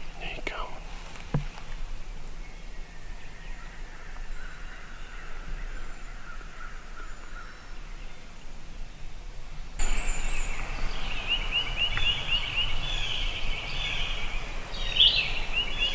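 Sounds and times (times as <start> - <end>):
outdoor background noise: 0.0 - 15.9
bird calls: 9.8 - 15.9.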